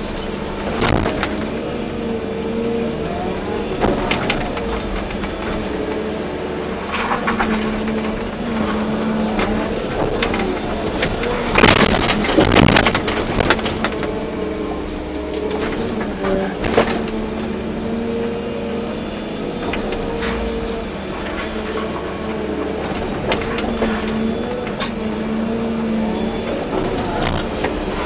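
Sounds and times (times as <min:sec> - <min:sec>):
excavator diesel engine running: 0:00.0 - 0:28.0
sharp clicks and knocks: 0:00.1 - 0:01.6, 0:03.1 - 0:17.5.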